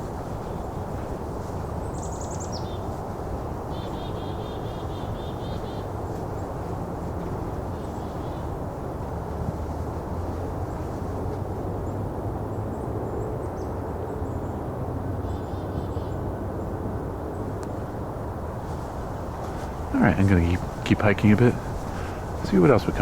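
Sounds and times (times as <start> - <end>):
chickadee calls: 0.0 - 8.6, 18.7 - 23.0
distant traffic rumble: 0.0 - 23.0.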